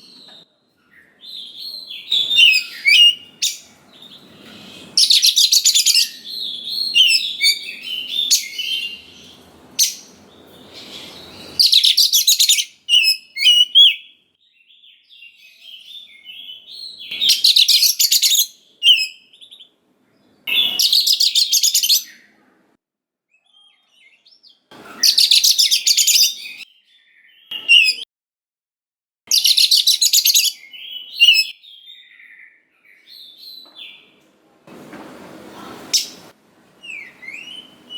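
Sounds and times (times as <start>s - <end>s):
bird whistling phrases: 1.9s - 3.7s, 10.8s - 14.1s
bird singing rapid notes: 1.9s - 15.0s.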